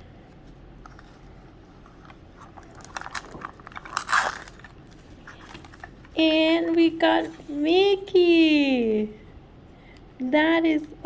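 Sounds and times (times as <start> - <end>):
plastic packaging crinkling: 0.9 - 6.9.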